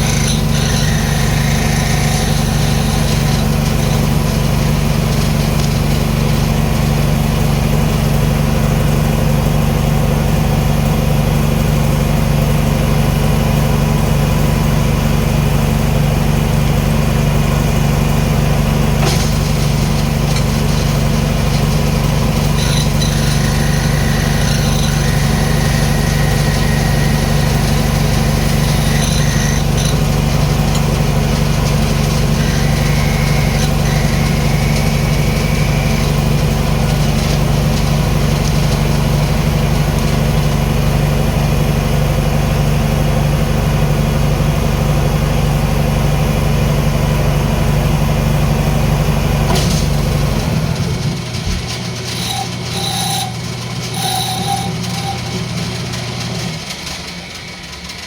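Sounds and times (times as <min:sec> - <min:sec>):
high whine of tool cutting: 0:00.0 - 0:09.4, 0:17.3 - 0:41.9, 0:49.5 - 0:56.7
wood lathe motor hum: 0:00.0 - 0:43.0, 0:47.6 - 0:56.8.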